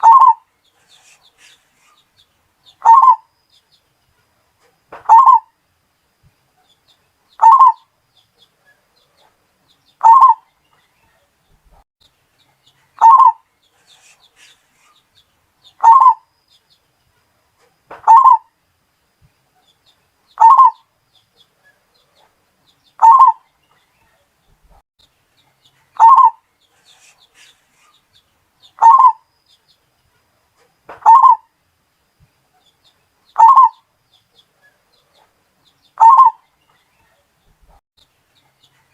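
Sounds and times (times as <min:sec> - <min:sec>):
dove cooing: 0:00.0 - 0:01.6, 0:02.8 - 0:03.2, 0:05.1 - 0:05.5, 0:07.4 - 0:07.8, 0:10.0 - 0:10.4, 0:13.0 - 0:14.5, 0:15.8 - 0:16.2, 0:18.0 - 0:18.5, 0:20.4 - 0:20.8, 0:23.0 - 0:23.4, 0:26.0 - 0:27.9, 0:28.8 - 0:29.2, 0:31.0 - 0:31.4, 0:33.4 - 0:33.8, 0:36.0 - 0:36.4.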